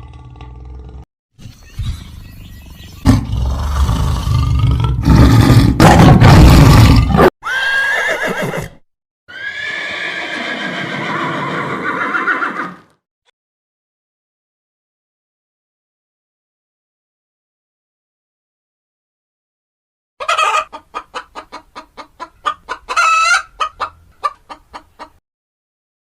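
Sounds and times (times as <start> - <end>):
horse neighing: 7.4 - 12.9.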